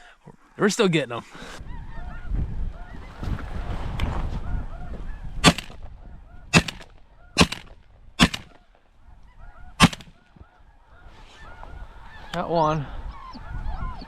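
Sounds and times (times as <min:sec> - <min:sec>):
shotgun shots: 0:05.4 - 0:05.8, 0:06.6 - 0:08.6, 0:09.8 - 0:10.2
rough rushing noise: 0:07.4 - 0:08.5.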